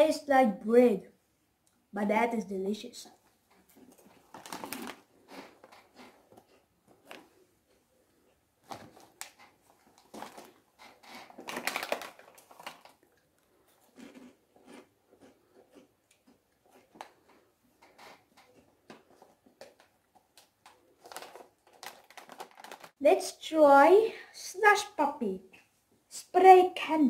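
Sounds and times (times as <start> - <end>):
crunching and chewing snacks: 3.6 - 23.0
foil snack bag crackling: 4.0 - 6.1, 8.8 - 13.2, 19.7 - 23.0.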